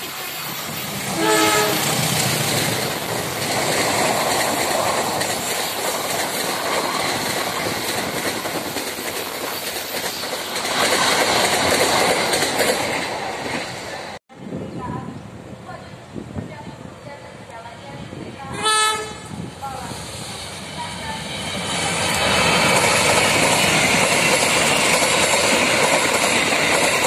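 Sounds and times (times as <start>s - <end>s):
train wheels clattering on rails: 0.8s - 13.7s, 20.8s - 27.0s
train horn blast: 1.1s - 2.0s, 18.5s - 19.4s.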